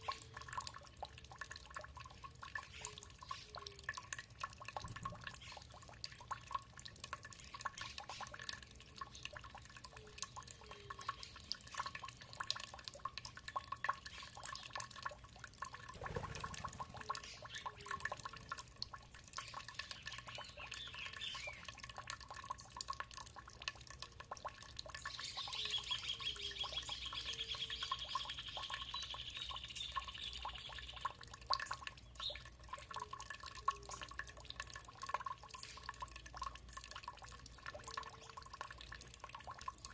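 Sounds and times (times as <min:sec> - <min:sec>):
water dripping and trickling: 0:00.0 - 0:39.9
birds calling: 0:16.0 - 0:18.2.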